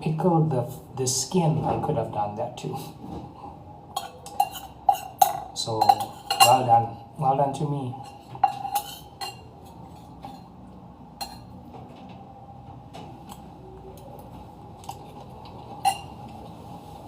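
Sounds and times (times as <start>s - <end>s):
cutlery clinking on a plate: 3.9s - 6.7s, 8.0s - 10.6s, 11.2s - 11.6s, 15.8s - 16.2s.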